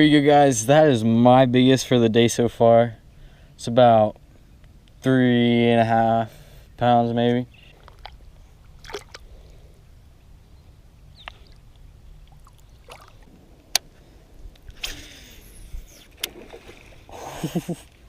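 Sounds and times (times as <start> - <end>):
water splashing: 7.7 - 9.6, 11.2 - 18.0.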